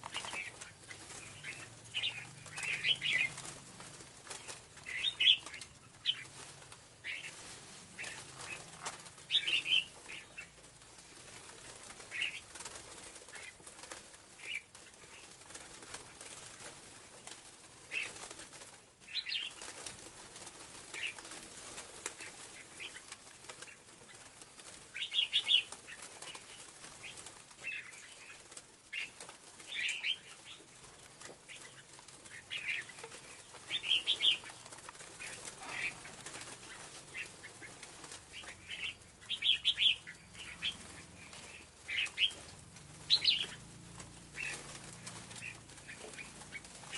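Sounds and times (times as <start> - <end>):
bird calling sharp chips: 43.1 - 43.6.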